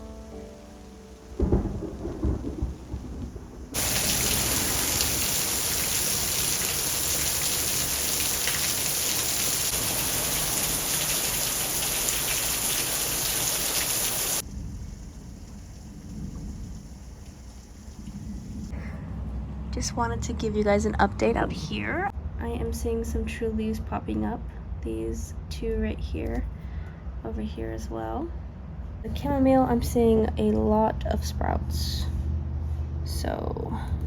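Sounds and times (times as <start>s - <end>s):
faint low rumble: 0.0s - 4.0s, 14.4s - 34.0s
heavy rain hissing: 0.0s - 18.7s
thunder clap rumbling: 1.1s - 21.9s.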